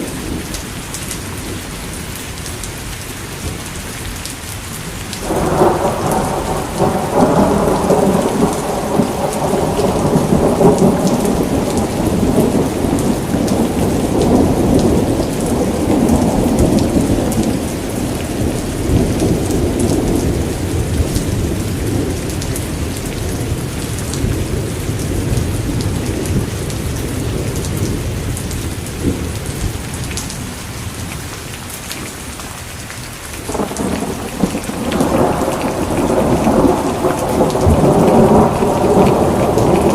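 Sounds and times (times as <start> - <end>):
heavy rain: 0.0 - 39.9
rolling thunder: 5.2 - 30.2, 33.5 - 39.9.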